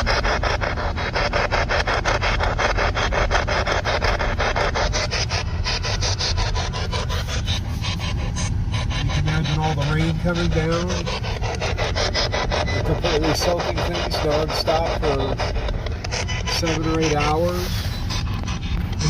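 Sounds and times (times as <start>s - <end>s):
car rumble: 0.0s - 19.0s
pulsing radio static: 0.0s - 19.0s.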